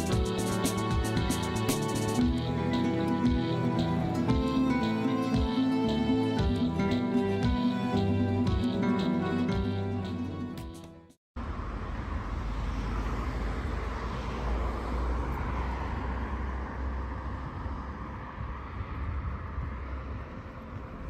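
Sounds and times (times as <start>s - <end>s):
guitar music: 0.0s - 11.2s.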